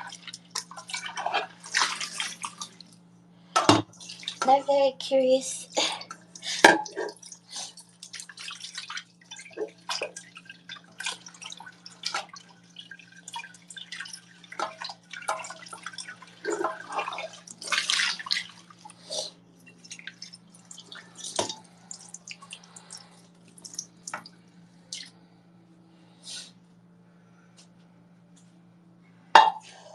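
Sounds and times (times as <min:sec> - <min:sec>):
steady low hum: 0:00.0 - 0:29.9
water splashing and dripping: 0:06.0 - 0:19.0, 0:19.7 - 0:24.3.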